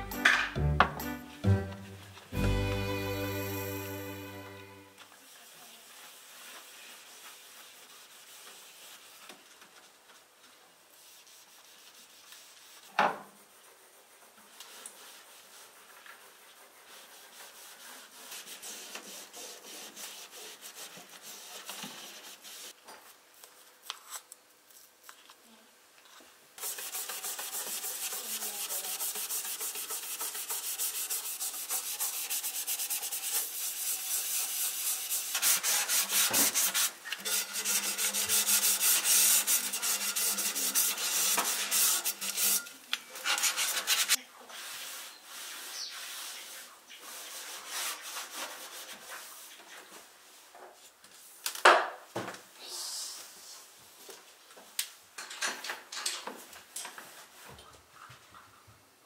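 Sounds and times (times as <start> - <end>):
scrubbing a kitchen surface: 5.1 - 22.8, 26.6 - 51.4.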